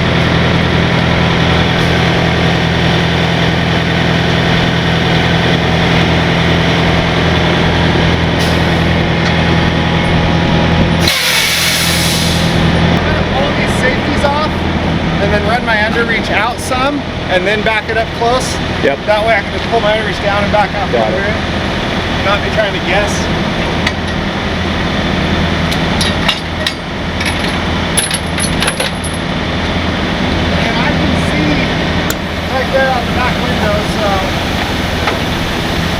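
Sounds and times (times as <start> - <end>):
diesel truck engine idling: 0.0 - 35.9
loud air hiss: 11.0 - 12.7
sharp metallic clinks and knocks: 26.0 - 29.3.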